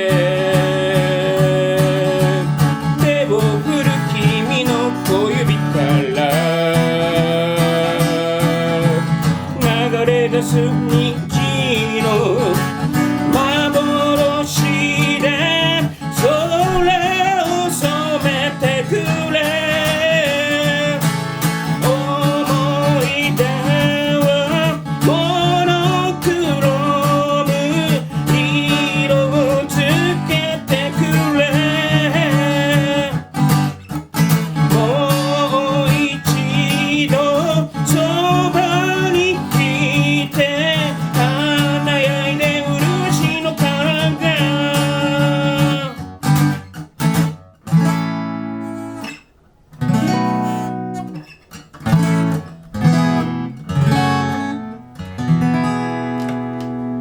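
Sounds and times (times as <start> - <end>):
person singing: 0.0 - 33.5, 34.5 - 46.1
acoustic guitar chords: 0.0 - 57.0.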